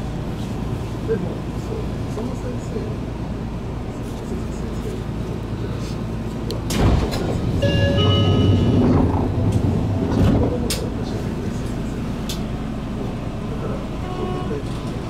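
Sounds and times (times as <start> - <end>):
train low hum: 0.0 - 15.0
chime-like tones: 7.6 - 8.8.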